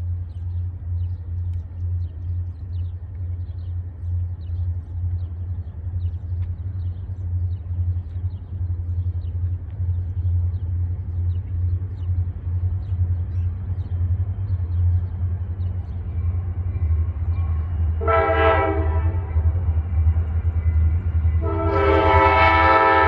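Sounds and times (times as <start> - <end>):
freight train rumbling: 0.0 - 23.0
faint high ticks: 6.2 - 6.7.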